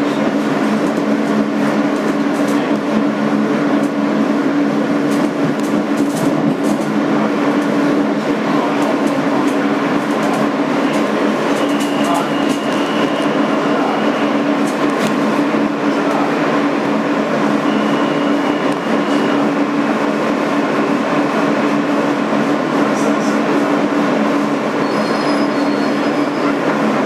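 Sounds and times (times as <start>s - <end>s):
subway car rumble: 0.0s - 27.0s
high-pitched wheel squeals: 24.8s - 26.6s.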